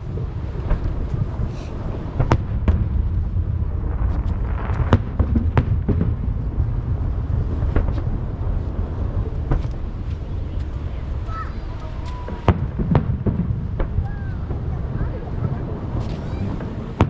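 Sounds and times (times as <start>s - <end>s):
fireworks booms echoing: 0.2s - 10.1s, 11.9s - 17.0s
fireworks sharp cracks: 15.4s - 17.0s.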